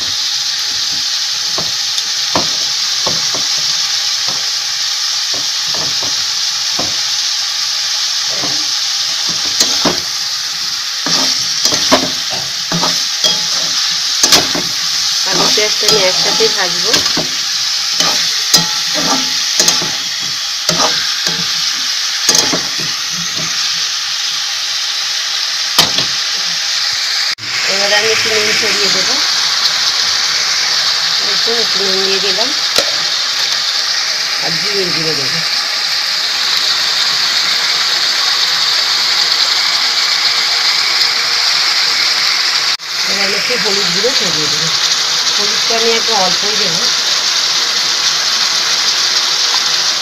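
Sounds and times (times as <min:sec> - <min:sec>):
vegetables sizzling in oil: 0:00.0 - 0:50.0
metal spatula scraping a pan: 0:11.0 - 0:23.7.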